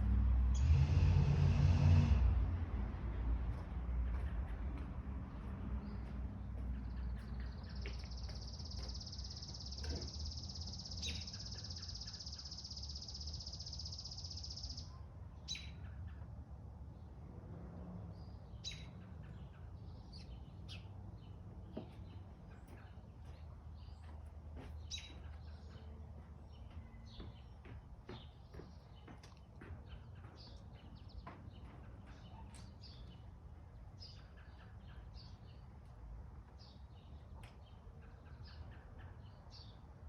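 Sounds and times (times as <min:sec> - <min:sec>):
low steady rumble: 0:00.0 - 0:04.1
wild birds chirping: 0:05.3 - 0:17.1, 0:18.1 - 0:35.8.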